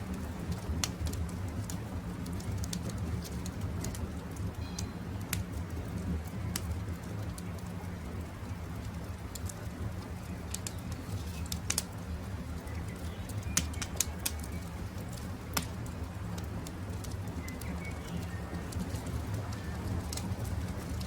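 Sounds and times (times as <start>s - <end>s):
campfire crackling: 0.0s - 21.0s
fire popping: 0.0s - 21.0s
faint bird chirps: 17.4s - 18.6s.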